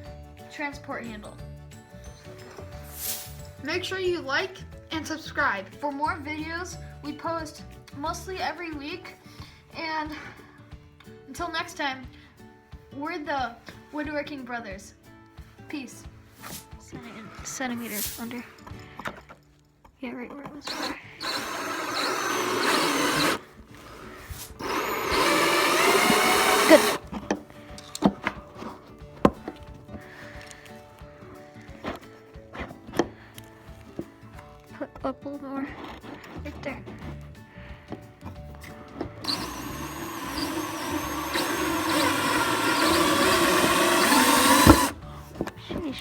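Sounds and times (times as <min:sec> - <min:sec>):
power drill driving screws: 0:20.7 - 0:27.0, 0:39.2 - 0:45.0.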